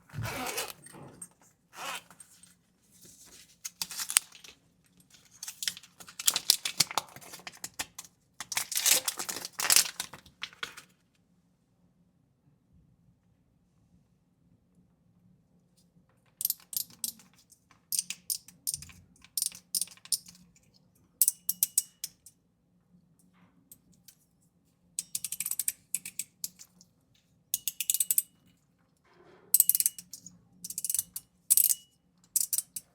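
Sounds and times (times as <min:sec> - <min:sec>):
fidget toy ratcheting clicks: 0:25.0 - 0:26.3.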